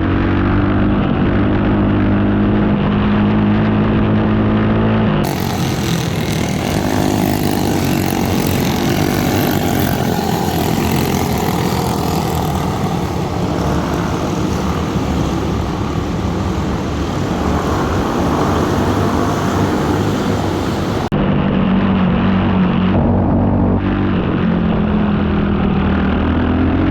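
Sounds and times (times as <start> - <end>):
kart engine running: 5.2 - 21.1
loud rushing noise: 5.2 - 24.2.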